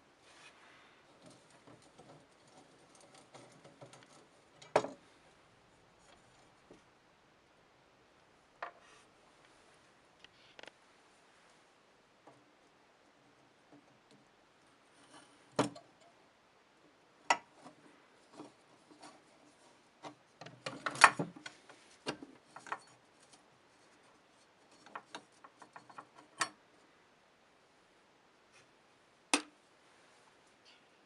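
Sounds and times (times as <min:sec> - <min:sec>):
clatter of handling parts: 0:00.3 - 0:05.1, 0:17.3 - 0:26.6.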